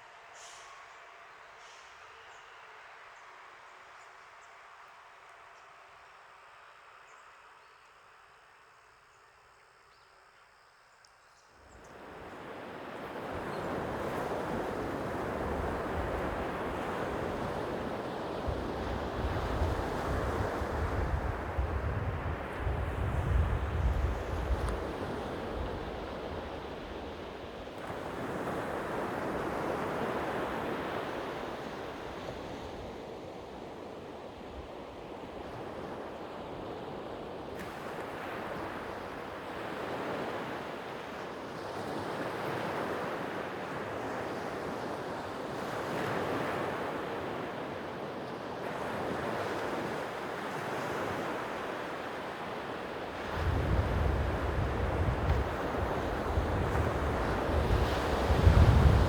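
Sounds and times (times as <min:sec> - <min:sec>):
sea waves washing ashore: 0:11.9 - 0:59.0.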